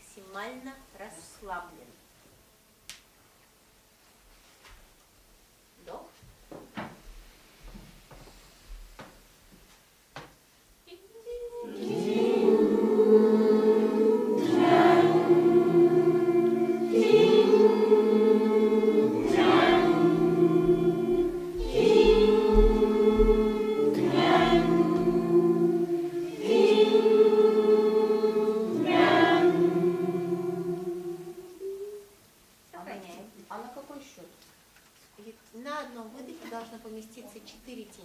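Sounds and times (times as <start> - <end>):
group of voices chanting: 11.4 - 31.6.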